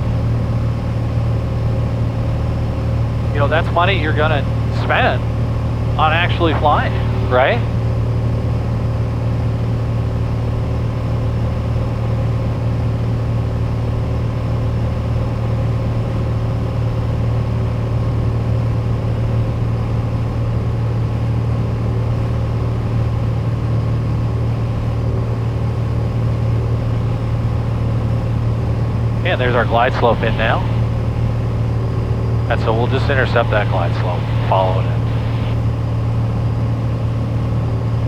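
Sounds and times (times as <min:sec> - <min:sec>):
aircraft engine and propeller droning: 0:00.0 - 0:11.8, 0:23.7 - 0:38.0.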